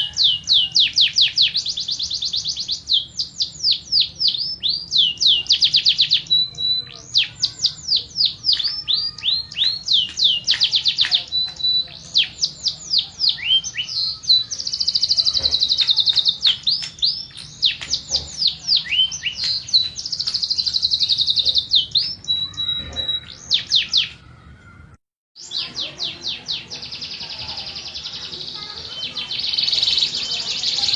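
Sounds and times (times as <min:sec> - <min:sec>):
canary singing: 0:00.0 - 0:30.9.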